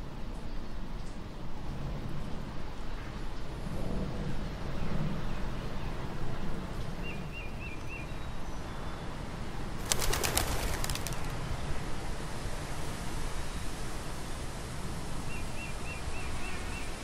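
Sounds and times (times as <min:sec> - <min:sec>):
bird wings flapping: 0:09.8 - 0:11.5.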